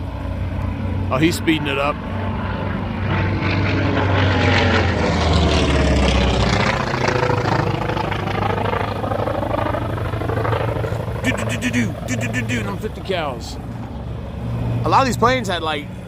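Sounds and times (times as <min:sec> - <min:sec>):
propeller plane passing close: 0:00.0 - 0:16.0.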